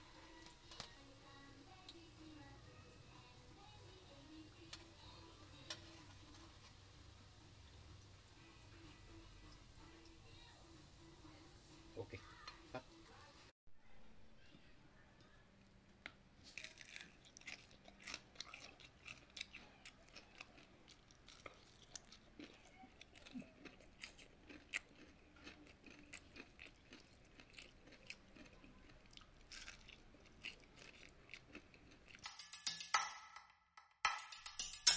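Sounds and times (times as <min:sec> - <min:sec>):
person chewing crispy food: 0:16.4 - 0:32.3.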